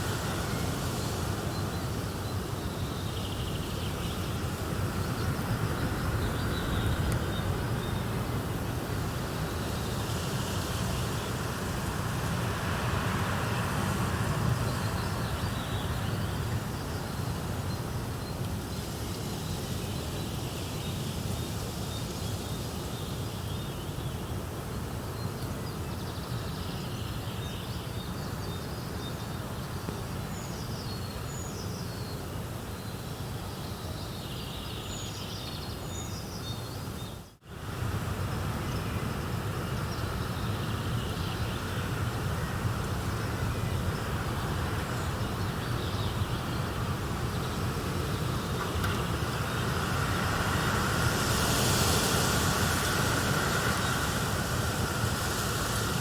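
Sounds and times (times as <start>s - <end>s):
steady hiss: 37.5s - 56.0s.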